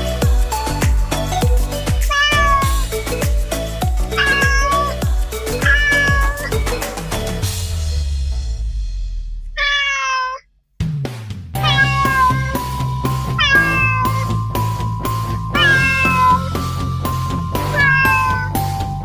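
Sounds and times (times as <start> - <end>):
background music with drum beat: 0.0 - 9.8, 10.8 - 19.0
kittens meowing: 1.9 - 3.2, 4.0 - 6.9, 9.6 - 10.4, 11.6 - 14.4, 15.5 - 16.6, 17.6 - 18.6.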